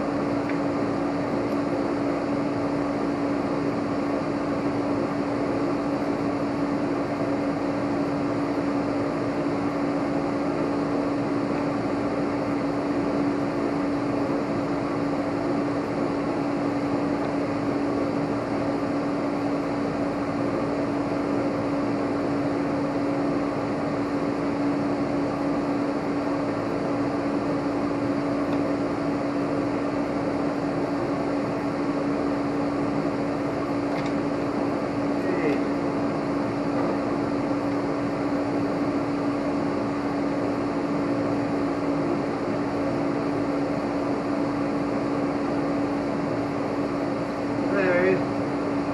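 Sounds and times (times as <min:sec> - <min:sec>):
steady machine hum: 0:00.0 - 0:48.9.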